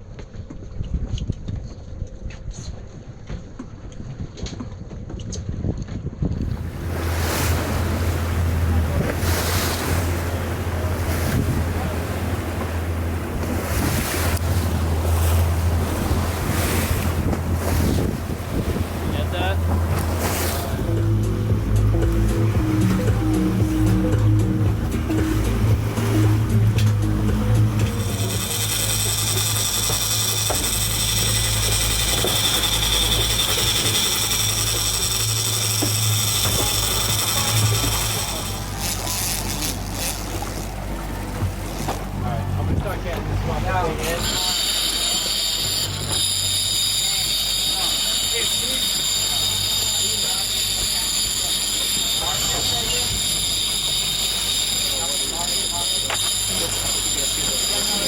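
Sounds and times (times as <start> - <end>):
wind buffeting microphone: 0.0 - 44.3
sea water splashing against boat: 0.0 - 58.0
steady low drone: 6.4 - 58.0
fishing reel drag buzzing: 6.5 - 42.1, 44.0 - 58.0.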